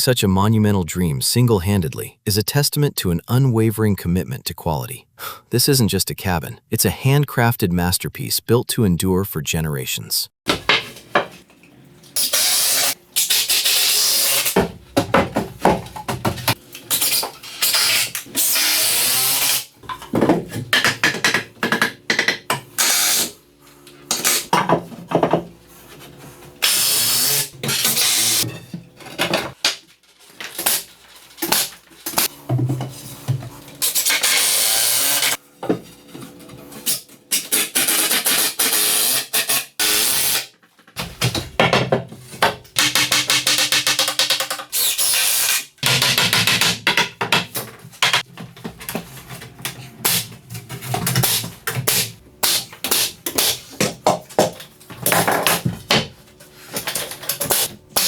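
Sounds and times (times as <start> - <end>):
tool cutting and drilling wood: 12.0 - 14.8, 15.6 - 25.3, 26.5 - 29.6, 30.4 - 35.4, 36.4 - 41.6, 42.3 - 49.0, 49.6 - 56.1, 56.8 - 58.0.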